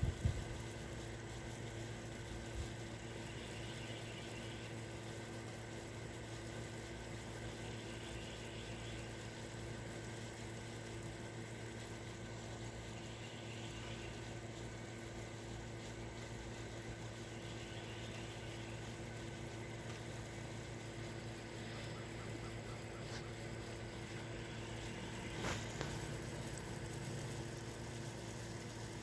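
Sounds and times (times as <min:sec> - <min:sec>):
low constant hum: 0:00.0 - 0:29.0
faint high buzzing: 0:12.4 - 0:29.0.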